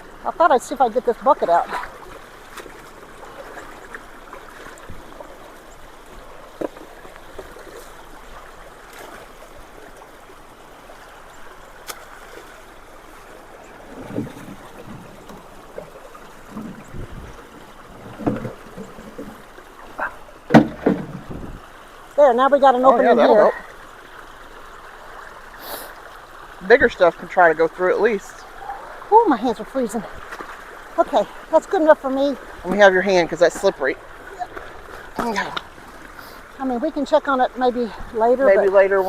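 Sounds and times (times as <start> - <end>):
floodwater rushing through culvert: 0.0 - 39.0
debris knocks and splashes: 13.9 - 19.5, 20.4 - 21.6.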